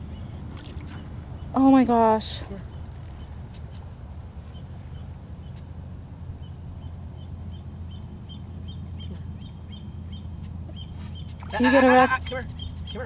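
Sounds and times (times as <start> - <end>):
steady low rumble: 0.0 - 13.0
small bird peeping calls: 6.4 - 11.5, 12.1 - 13.0.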